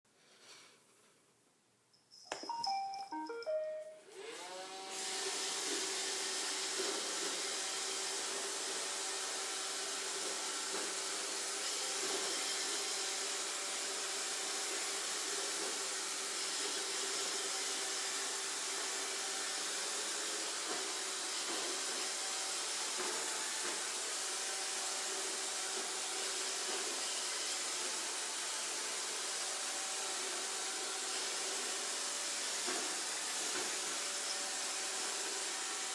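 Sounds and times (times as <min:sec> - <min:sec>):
robot vacuum beeping tune: 0:02.5 - 0:04.2.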